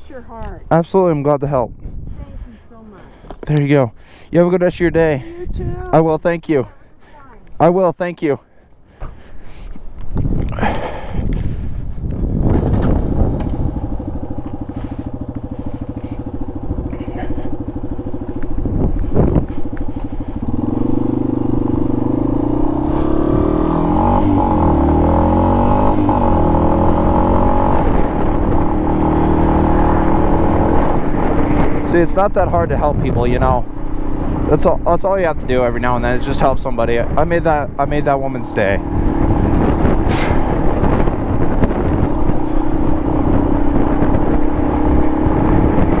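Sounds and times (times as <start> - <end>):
wind noise on microphone: 1.4 - 3.4, 4.6 - 6.2, 9.0 - 46.0
motorcycle engine pulling away: 12.2 - 37.2, 38.0 - 46.0.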